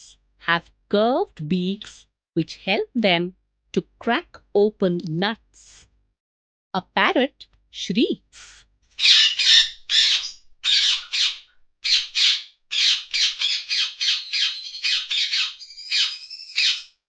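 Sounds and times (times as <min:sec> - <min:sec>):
parakeet shrieking: 0:09.0 - 0:17.0
whistled bird calls: 0:09.0 - 0:17.0.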